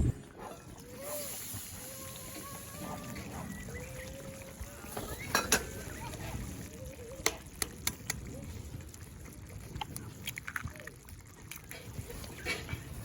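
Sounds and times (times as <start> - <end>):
low steady rumble: 0.0 - 0.7.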